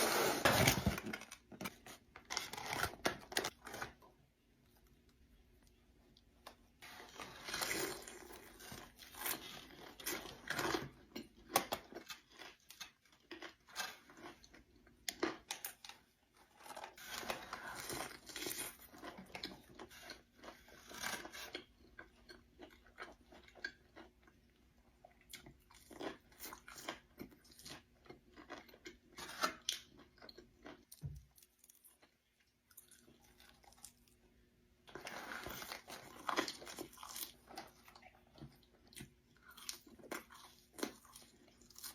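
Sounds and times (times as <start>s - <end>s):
chewing crispy food: 4.7s - 41.9s.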